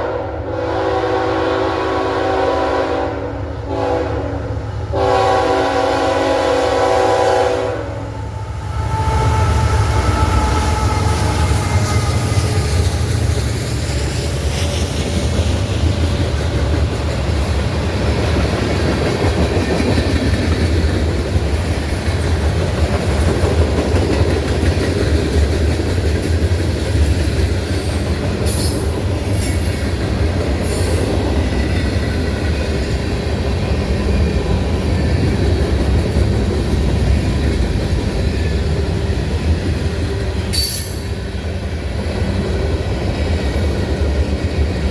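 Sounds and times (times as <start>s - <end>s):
train horn: 0.0s - 12.8s
train rumbling past: 0.0s - 44.9s
high wheel squeals: 8.6s - 15.8s.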